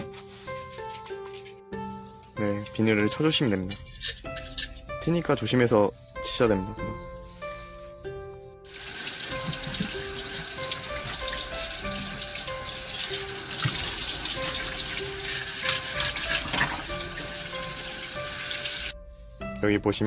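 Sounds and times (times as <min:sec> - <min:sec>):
background music: 0:00.0 - 0:20.0
tap water running into sink: 0:08.7 - 0:19.0.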